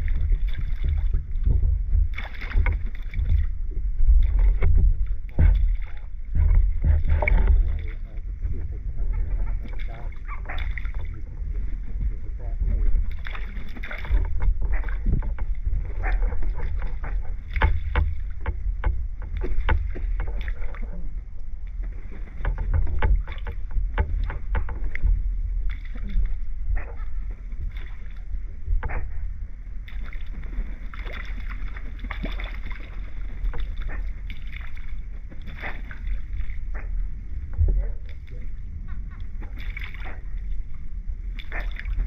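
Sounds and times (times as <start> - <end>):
steady low rumble: 0.0 - 42.0
water slapping against a dock: 0.0 - 42.0.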